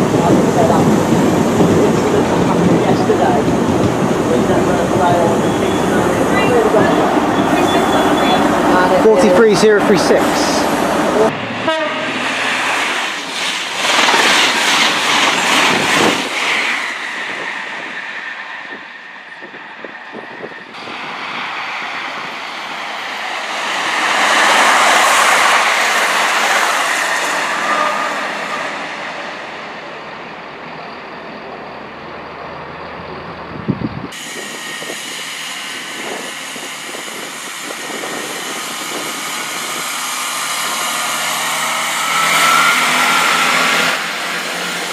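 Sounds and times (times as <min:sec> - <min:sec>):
train rail and wheel noise: 0:00.0 - 0:44.9
train wheel squeal: 0:05.2 - 0:08.5, 0:34.2 - 0:44.1.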